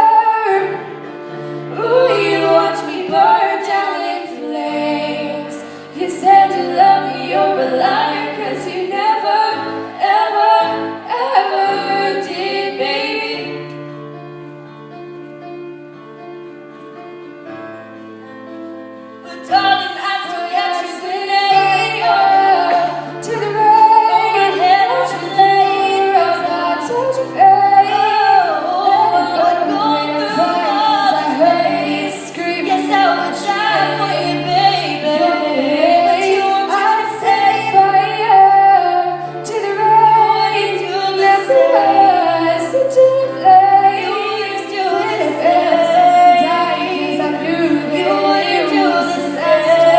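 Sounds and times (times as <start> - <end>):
woman singing pop song: 19.3 - 49.9
sustained backing chords: 37.3 - 49.9.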